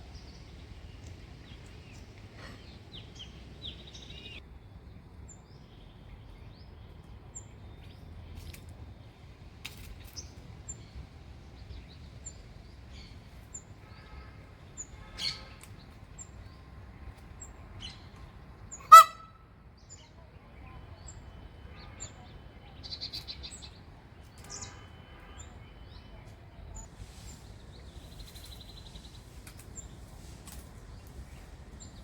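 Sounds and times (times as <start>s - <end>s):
birds chirping and chattering: 0.1s - 4.4s, 19.8s - 32.0s.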